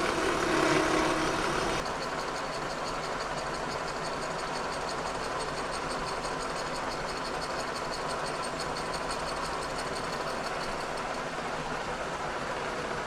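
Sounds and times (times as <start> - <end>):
milling cutter cutting metal: 0.0 - 1.8.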